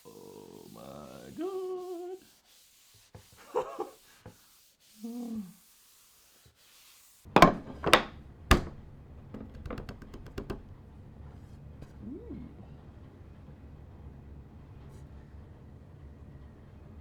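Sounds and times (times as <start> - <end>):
sharp knocks: 7.4 - 10.8.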